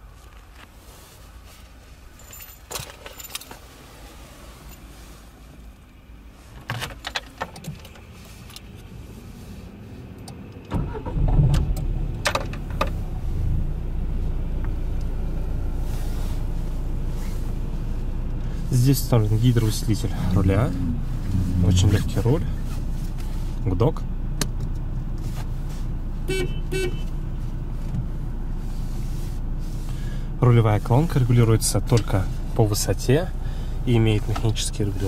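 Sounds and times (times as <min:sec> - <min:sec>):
car engine cranking and idling: 0:00.0 - 0:35.0
keys jingling in ignition: 0:02.1 - 0:04.9.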